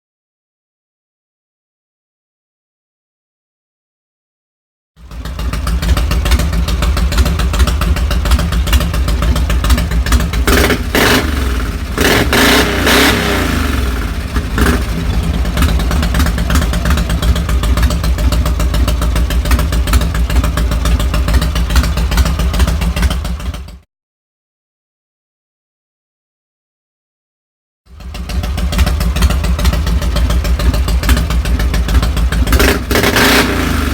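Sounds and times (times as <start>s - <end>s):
motorcycle engine idling and revving: 5.0s - 23.9s, 27.9s - 33.9s.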